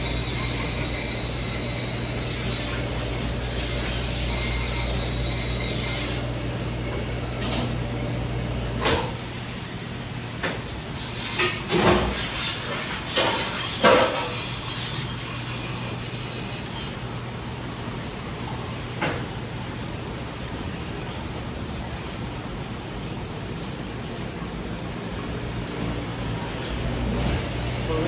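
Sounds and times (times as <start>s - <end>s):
mechanical hum: 0.0s - 28.0s.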